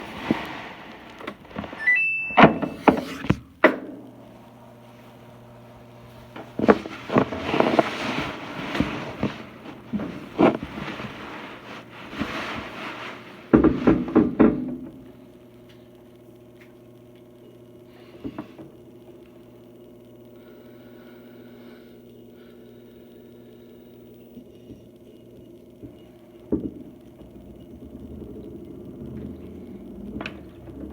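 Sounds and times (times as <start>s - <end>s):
knocks and handling noise: 0.0s - 4.0s
washing machine humming: 0.0s - 30.9s.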